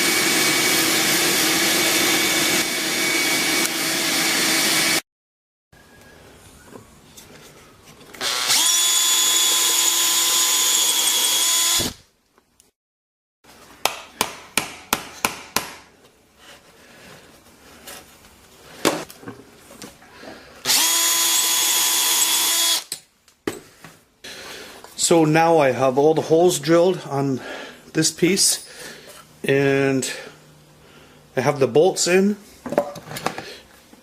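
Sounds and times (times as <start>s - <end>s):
electric drill boring holes: 0.0s - 5.0s, 8.2s - 12.0s, 20.6s - 22.9s.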